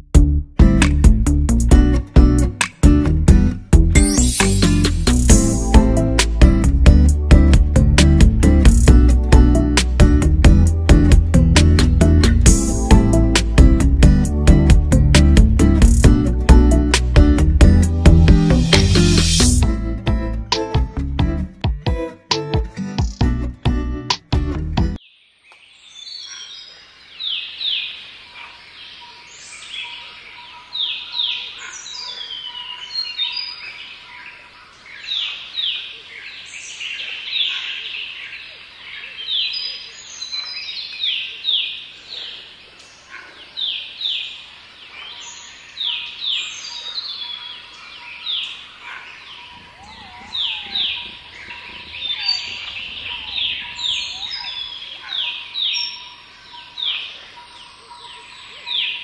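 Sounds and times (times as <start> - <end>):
small birds chirping: 25.0 - 59.0.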